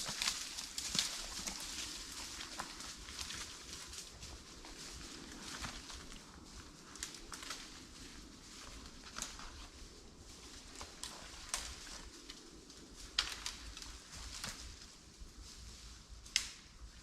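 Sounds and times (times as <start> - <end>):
sharp clicks and snaps: 16.2 - 16.6.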